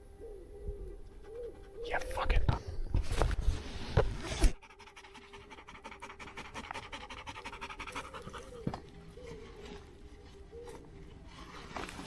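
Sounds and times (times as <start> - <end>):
dog panting: 1.1 - 2.2, 4.6 - 9.4.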